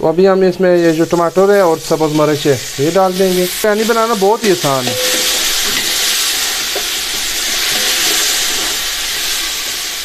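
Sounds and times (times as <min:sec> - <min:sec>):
vegetables sizzling in a pot: 0:00.2 - 0:10.0
metal ladle stirring: 0:04.5 - 0:08.7.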